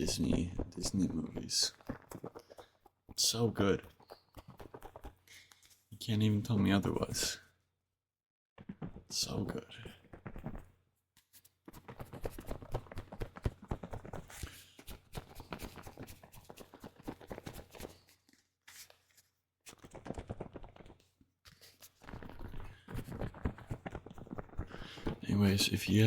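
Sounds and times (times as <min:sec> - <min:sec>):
dense crackling and clicking: 0:00.0 - 0:05.7, 0:08.6 - 0:10.8, 0:19.7 - 0:21.1, 0:22.0 - 0:26.0.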